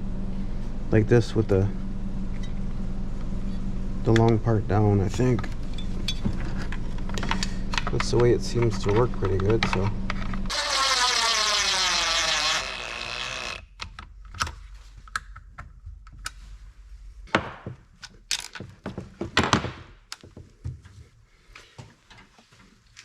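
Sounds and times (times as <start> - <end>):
whirring falling in pitch: 10.5 - 13.6.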